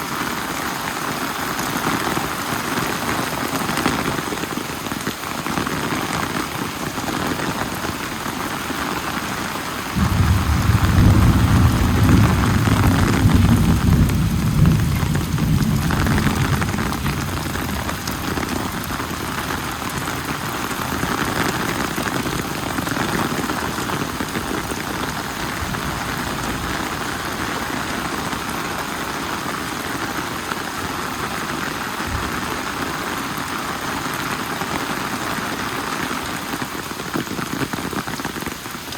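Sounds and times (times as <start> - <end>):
heavy rain falling: 0.0 - 38.9
thunder rumble: 10.0 - 28.5.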